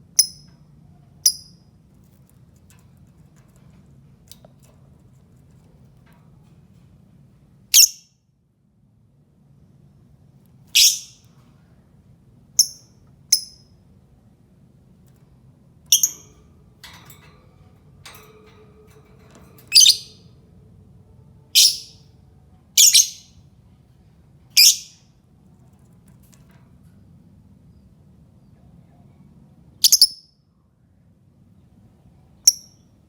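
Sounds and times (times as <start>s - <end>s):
lovebird shrill calls: 10.8s - 11.2s, 19.7s - 20.2s, 21.6s - 22.0s, 22.8s - 23.3s.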